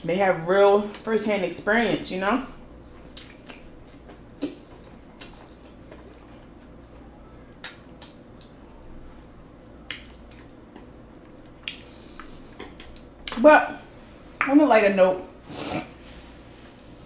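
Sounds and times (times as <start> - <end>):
person eating with wet clicks: 3.0 - 6.8, 7.6 - 8.6, 9.4 - 13.4.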